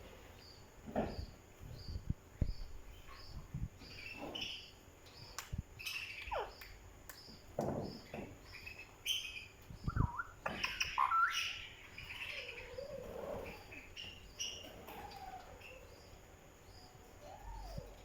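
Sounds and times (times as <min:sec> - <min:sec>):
soft low thumps: 0:00.9 - 0:04.0
parrot chirping and whistling: 0:09.1 - 0:11.7.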